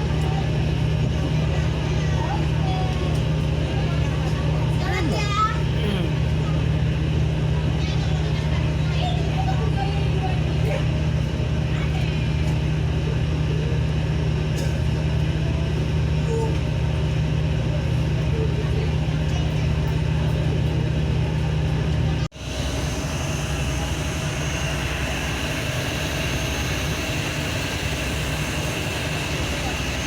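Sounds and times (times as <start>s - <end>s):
ferry engines droning: 0.0s - 30.0s.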